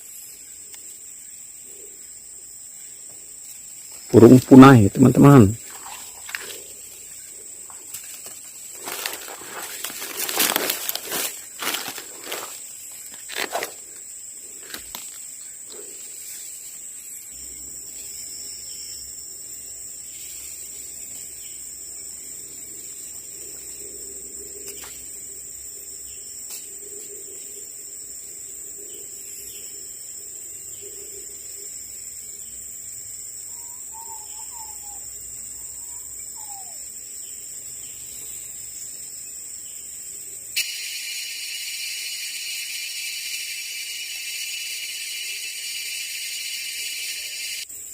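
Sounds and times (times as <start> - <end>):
insects droning: 0.0 - 47.9
whistled bird notes: 33.5 - 36.8.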